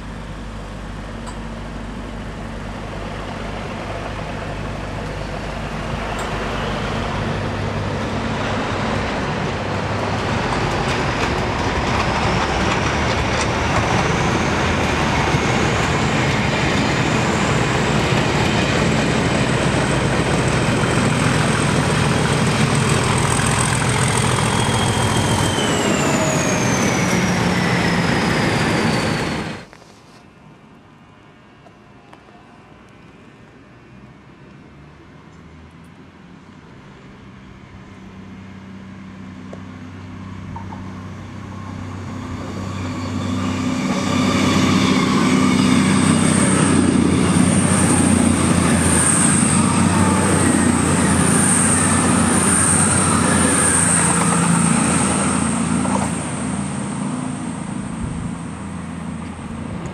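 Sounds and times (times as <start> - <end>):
train engine and wheels: 0.0 - 59.9.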